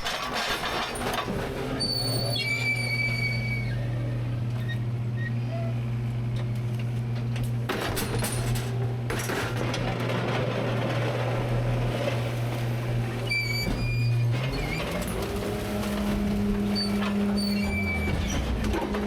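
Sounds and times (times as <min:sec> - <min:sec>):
trash crushing and crackling: 0:00.0 - 0:03.6, 0:06.3 - 0:19.0
hydraulic packer humming: 0:00.0 - 0:19.0
high metal squeals: 0:00.3 - 0:05.8, 0:12.1 - 0:18.9.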